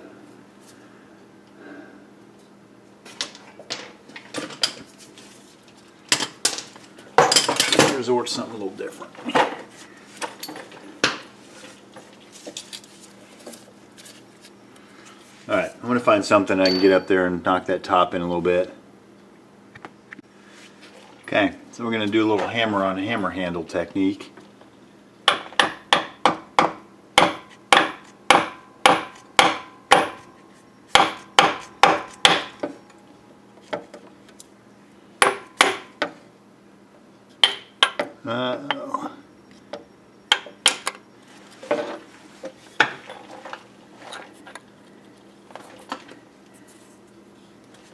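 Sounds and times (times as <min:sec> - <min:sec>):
metal hand tools clinking: 0:16.6 - 0:17.1.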